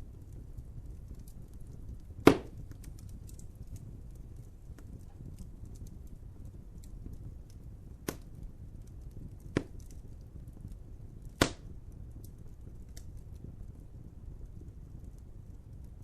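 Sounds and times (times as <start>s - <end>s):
wood fire crackling: 0.0s - 16.0s
sharp loud pops from fire: 0.8s - 6.1s, 7.9s - 13.2s.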